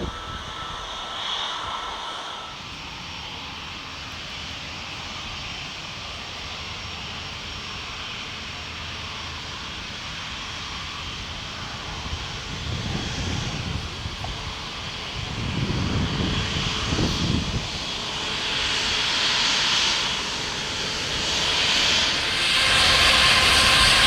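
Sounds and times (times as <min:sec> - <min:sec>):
low rumble: 0:00.0 - 0:03.4
faint high whine: 0:00.0 - 0:05.6
jet engines rushing: 0:00.0 - 0:24.0.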